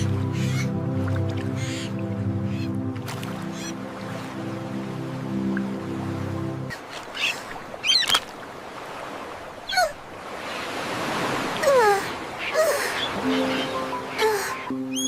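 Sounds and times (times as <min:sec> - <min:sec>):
surf washing: 0:03.0 - 0:14.7
squeaky bird calls: 0:07.2 - 0:08.2, 0:12.4 - 0:15.0.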